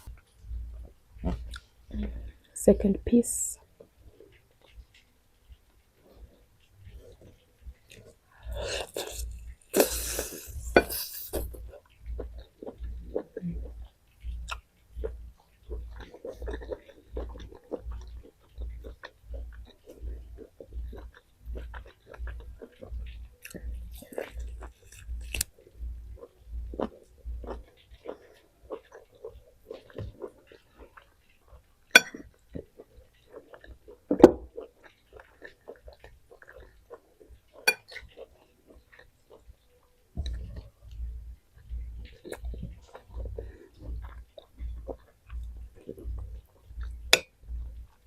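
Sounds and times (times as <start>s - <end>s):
person chewing food: 0.0s - 2.5s, 3.6s - 48.0s
wet mouth clicks and smacks: 8.8s - 38.3s.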